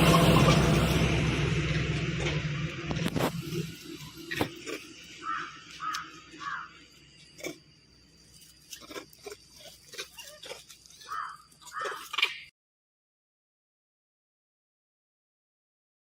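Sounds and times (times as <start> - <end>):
short animal calls: 5.2 - 6.8, 9.9 - 12.5.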